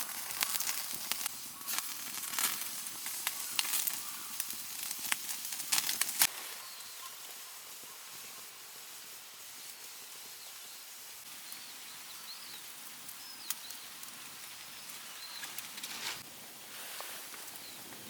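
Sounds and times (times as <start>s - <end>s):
meat sizzling in a grill pan: 0.0s - 6.3s
faint bird chirps: 6.5s - 8.1s.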